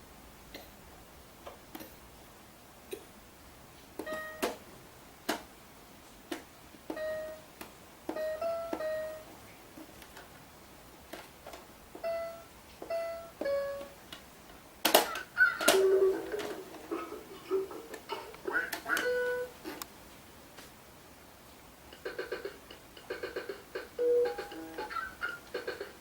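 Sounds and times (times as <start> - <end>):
electronic toy notes: 4.0 - 4.6, 6.9 - 7.4, 8.1 - 9.3, 12.0 - 14.0, 18.9 - 19.5, 23.2 - 25.8.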